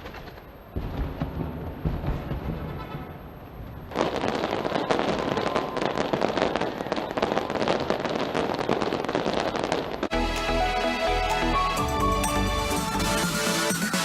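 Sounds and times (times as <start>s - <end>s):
fireworks crackling and banging: 0.0s - 10.2s.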